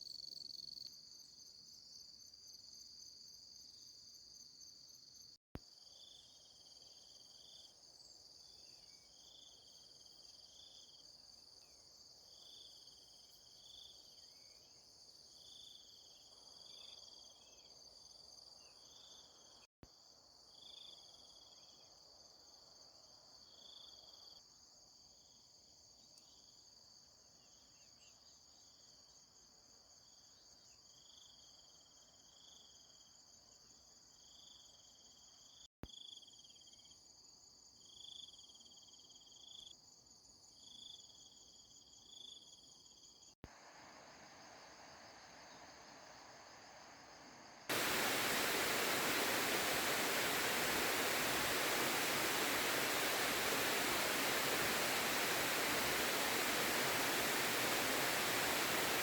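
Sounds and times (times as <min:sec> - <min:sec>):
insects chirring: 0:43.6 - 0:59.0
short repeating insect call: 0:43.6 - 0:59.0.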